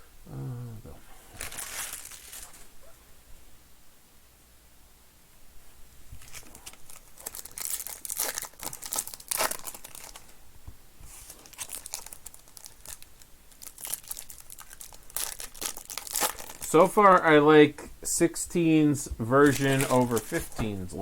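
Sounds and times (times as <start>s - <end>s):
plastic wrappers tearing and crinkling: 1.4s - 2.7s, 6.2s - 10.3s, 11.2s - 16.8s, 19.4s - 20.7s.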